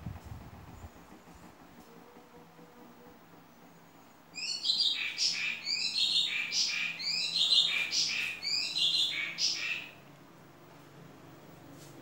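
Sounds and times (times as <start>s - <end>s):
electric fan humming: 0.0s - 3.4s
bird chirping: 4.4s - 10.0s.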